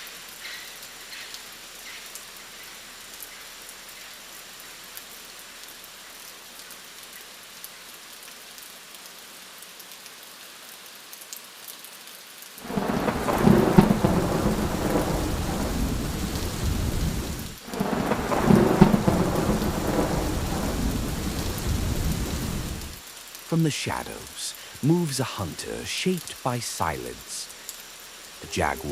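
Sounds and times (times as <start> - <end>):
steady rain falling: 0.0 - 28.9
rolling thunder: 12.6 - 23.0.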